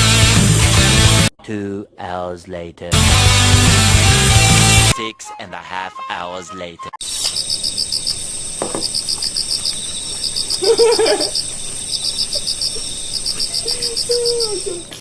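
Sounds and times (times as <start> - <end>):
insects chirping: 7.0 - 15.0.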